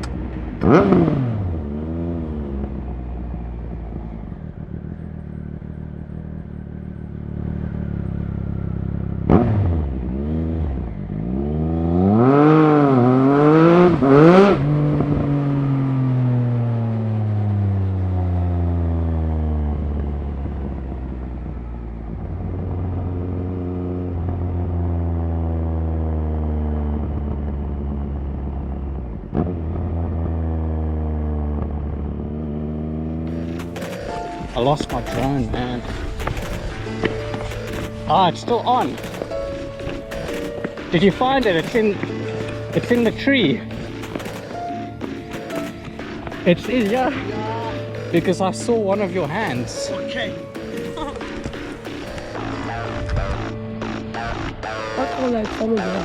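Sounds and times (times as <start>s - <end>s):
motorcycle engine revving: 0.0s - 56.0s
sharp crack: 33.3s - 56.0s.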